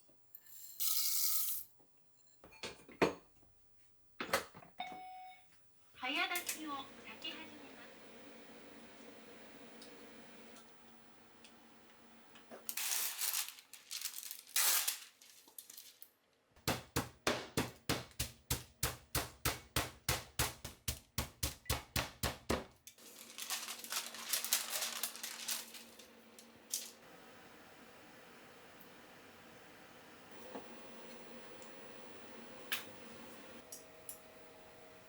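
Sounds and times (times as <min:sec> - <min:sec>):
rustling: 0:12.6 - 0:16.2, 0:23.0 - 0:27.0
knife chopping on cutting board: 0:16.6 - 0:22.7.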